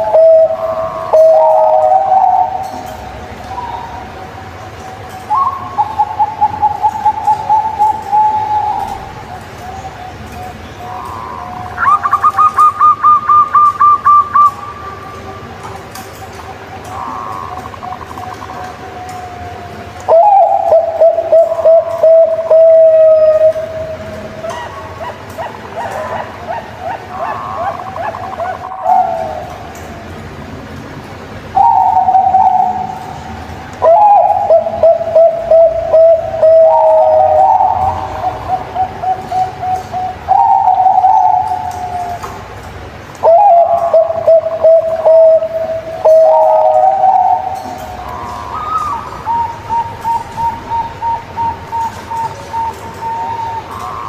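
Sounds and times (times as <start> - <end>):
whistled bird calls: 0.0 - 15.4, 16.2 - 29.6, 43.2 - 54.0
dove cooing: 0.0 - 30.1, 31.5 - 42.4, 43.2 - 54.0.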